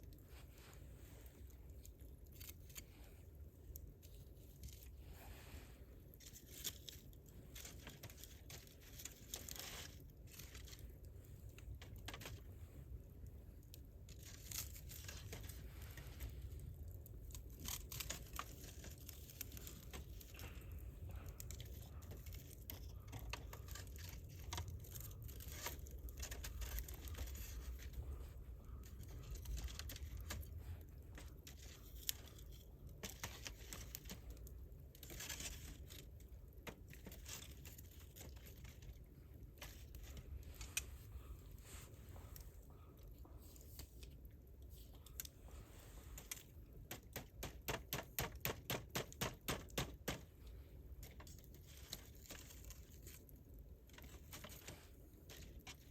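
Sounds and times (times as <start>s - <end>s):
low steady rumble: 0.0s - 46.9s
campfire crackling and popping: 46.6s - 50.3s.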